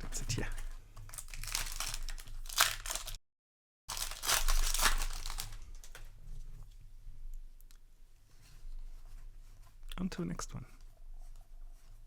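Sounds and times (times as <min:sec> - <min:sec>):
plastic wrapper crinkling and tearing: 0:00.0 - 0:03.2, 0:03.9 - 0:06.2.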